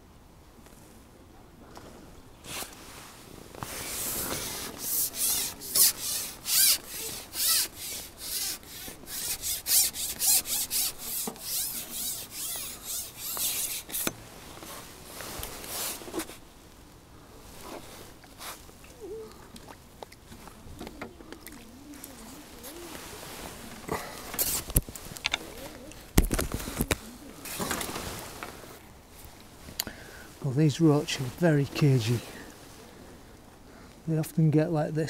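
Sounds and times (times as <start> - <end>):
rubbing or scraping strokes: 2.4 - 16.4, 22.0 - 28.8.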